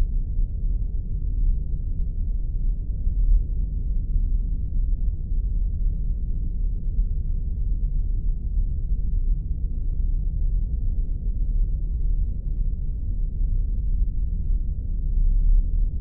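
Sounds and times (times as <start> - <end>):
deep rumbling drone: 0.0 - 16.0.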